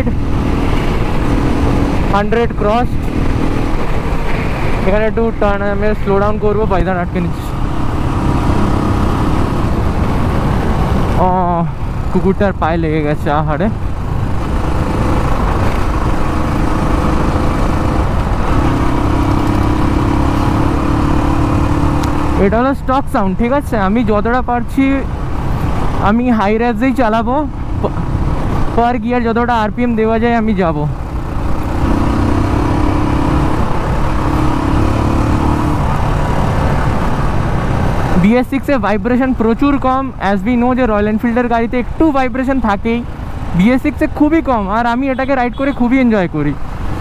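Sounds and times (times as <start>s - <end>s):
motorcycle engine at high revs: 0.0s - 5.0s, 7.1s - 11.2s, 14.0s - 22.6s, 30.9s - 38.2s.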